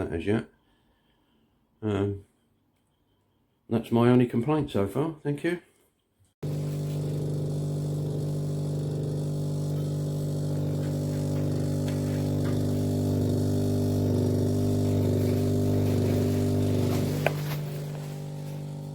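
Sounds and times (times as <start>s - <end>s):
fridge compressor humming: 6.4s - 18.9s.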